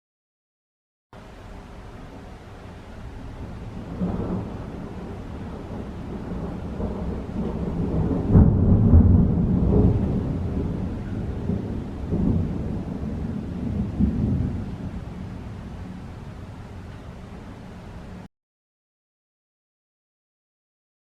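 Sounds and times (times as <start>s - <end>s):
thunder rolling: 1.6s - 18.3s.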